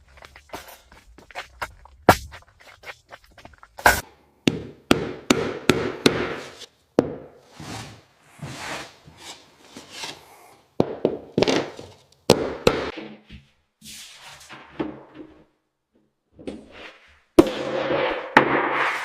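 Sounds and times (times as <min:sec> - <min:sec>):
scraping strokes: 0:07.5 - 0:10.6.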